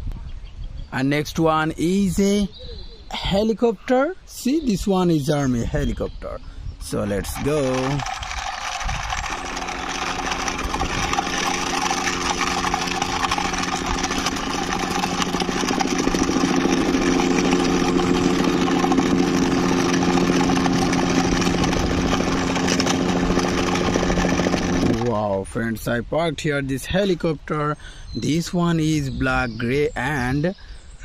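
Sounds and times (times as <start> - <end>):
toy helicopter mechanism whirring: 6.8 - 25.1.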